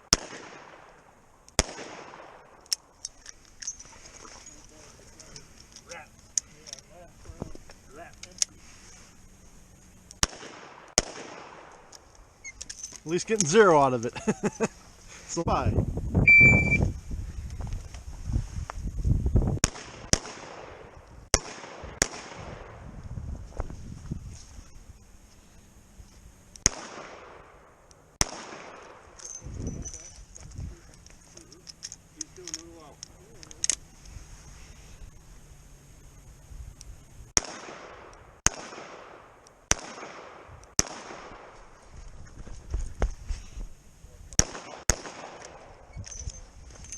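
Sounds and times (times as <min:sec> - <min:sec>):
faint distant gunshots: 0:00.0 - 0:01.0, 0:01.6 - 0:02.6, 0:10.2 - 0:11.9, 0:19.6 - 0:22.8, 0:26.6 - 0:29.2, 0:37.4 - 0:41.6, 0:44.4 - 0:45.8.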